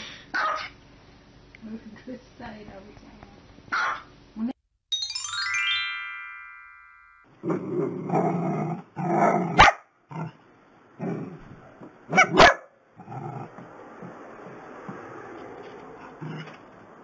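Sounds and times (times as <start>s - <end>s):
small dogs barking: 0.3s - 0.8s, 3.7s - 4.1s, 9.0s - 10.3s, 12.1s - 13.5s
descending chime jingle: 4.9s - 7.3s.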